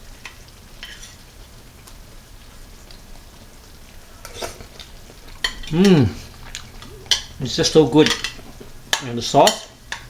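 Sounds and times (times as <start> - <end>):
low room hum: 0.0 - 10.0
person chewing: 4.2 - 8.9.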